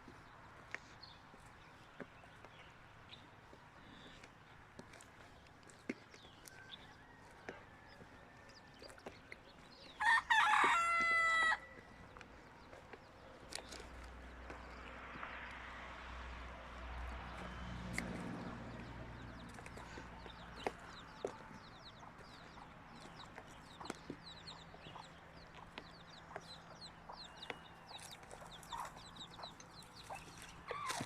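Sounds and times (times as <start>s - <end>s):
small birds chirping: 0.0s - 15.8s, 17.0s - 31.0s
chickens clucking: 17.9s - 31.0s.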